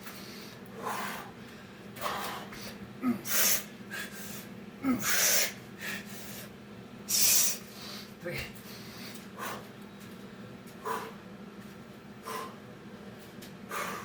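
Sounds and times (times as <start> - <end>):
man breathing heavily: 0.0 - 11.4, 12.1 - 14.0.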